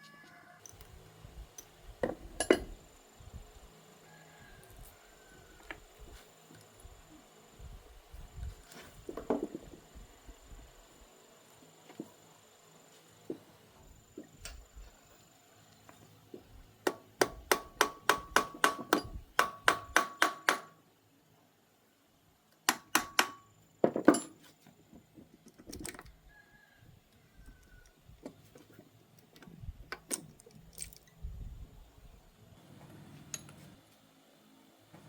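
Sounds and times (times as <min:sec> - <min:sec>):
tools clinking: 0:01.5 - 0:02.8, 0:29.3 - 0:31.2
hammer striking metal: 0:16.9 - 0:20.8, 0:22.7 - 0:23.5.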